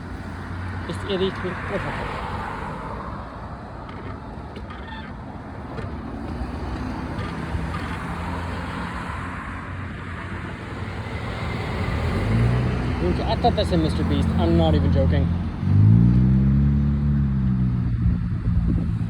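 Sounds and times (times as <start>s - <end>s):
road traffic noise: 0.0s - 19.0s
low vehicle engine hum: 10.5s - 19.0s
wind rush on microphone: 17.8s - 19.0s.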